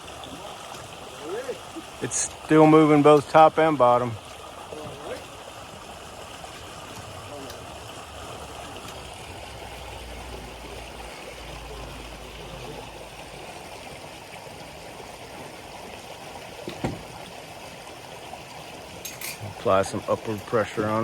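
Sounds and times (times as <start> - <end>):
creek water flowing: 0.0 - 21.0.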